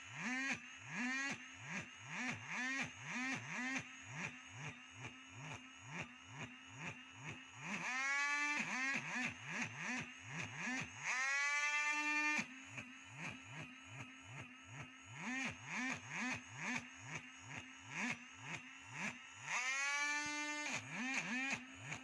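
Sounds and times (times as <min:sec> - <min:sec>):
power tool motor spinning: 0:06.8 - 0:13.6, 0:14.3 - 0:22.0.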